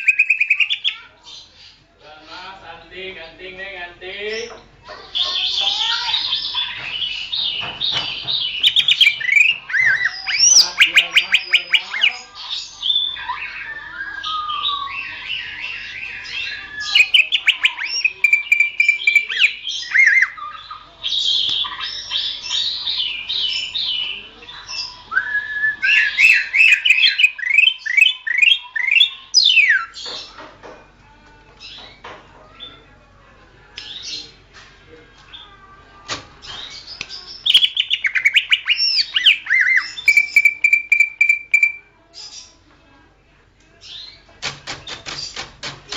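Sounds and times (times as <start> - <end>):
bird singing whistled trills: 0.0 - 1.0, 8.6 - 12.2, 12.9 - 20.6, 37.4 - 41.9.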